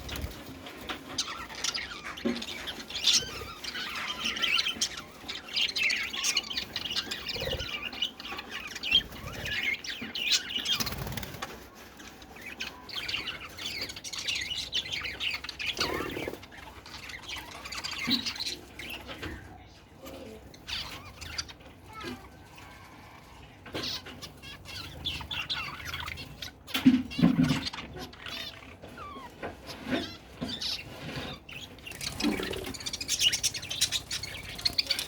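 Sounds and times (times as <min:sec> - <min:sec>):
small birds chirping and squawking: 0:00.0 - 0:35.0.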